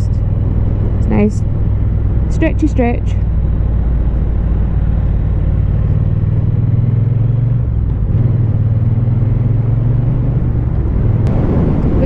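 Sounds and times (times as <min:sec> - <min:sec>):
motorcycle engine running: 0:00.0 - 0:12.0
rush of noise: 0:10.4 - 0:12.0.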